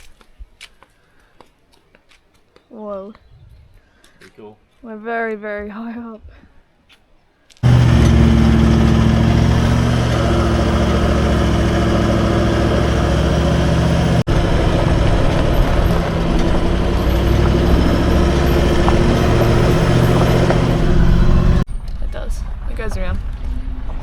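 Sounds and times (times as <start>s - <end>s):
vehicle engine humming: 7.6s - 21.7s.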